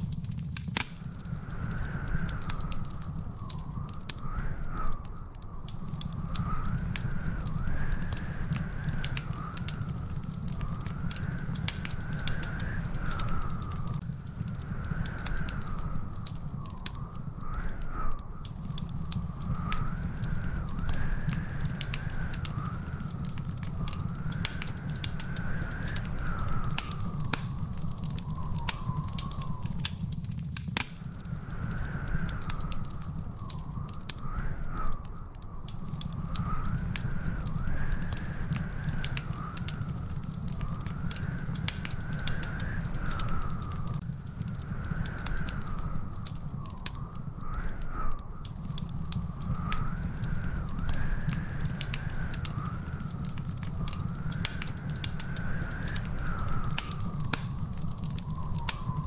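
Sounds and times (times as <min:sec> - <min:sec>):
wood fire crackling: 0:00.0 - 0:59.0
high whistling tone: 0:14.6 - 0:30.2, 0:31.1 - 0:59.0.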